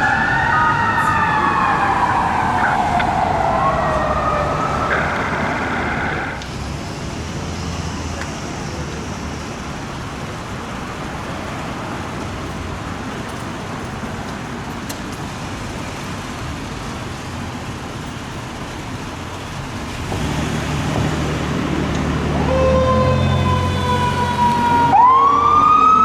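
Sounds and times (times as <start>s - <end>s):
heavy vehicle engine: 0.0s - 26.0s
street traffic passing: 0.0s - 26.0s.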